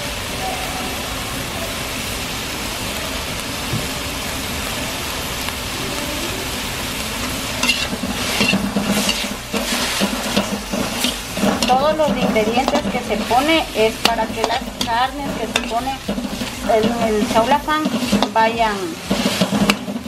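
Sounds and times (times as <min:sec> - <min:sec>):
chicken sizzling in hot oil: 0:00.0 - 0:20.0
metal utensil scraping a wok: 0:07.6 - 0:20.0.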